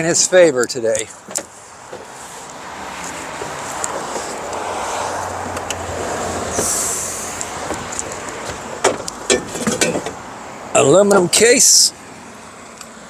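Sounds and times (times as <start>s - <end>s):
heavy vehicle rumbling past: 1.8s - 8.8s
short hiss: 6.6s - 7.4s
sharp knocks and clatters: 7.6s - 10.2s.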